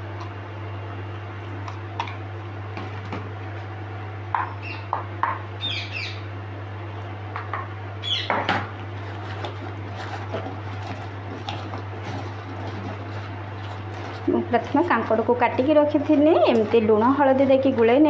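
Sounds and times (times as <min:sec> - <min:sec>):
steady low hum: 0:00.0 - 0:18.0
bird chirping: 0:04.6 - 0:04.9, 0:05.6 - 0:06.2, 0:08.0 - 0:08.3.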